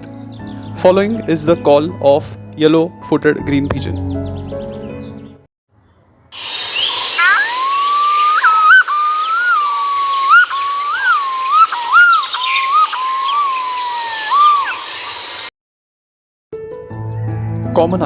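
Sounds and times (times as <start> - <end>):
pigeon warbling whistle: 6.4 - 15.5
steady high-pitched whine: 6.4 - 15.5.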